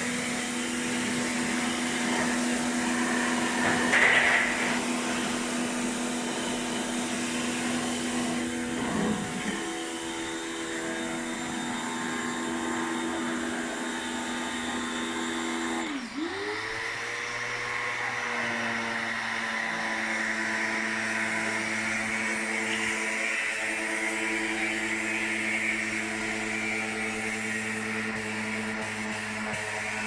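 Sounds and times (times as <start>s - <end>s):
electric motor humming: 0.0s - 30.0s.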